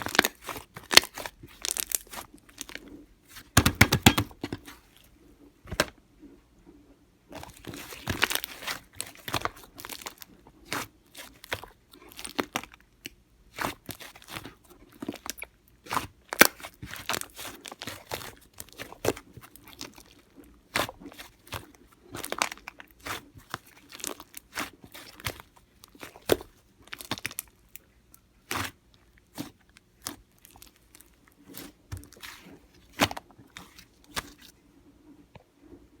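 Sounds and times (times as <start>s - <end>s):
slime popping and crackling: 0.0s - 2.8s.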